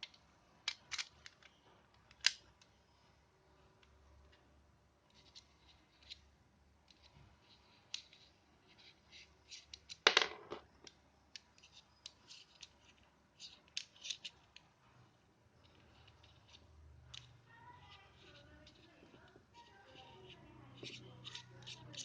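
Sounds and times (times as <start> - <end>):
small clicks and scrapes: 0.0 - 2.8, 5.0 - 10.1, 10.8 - 22.0.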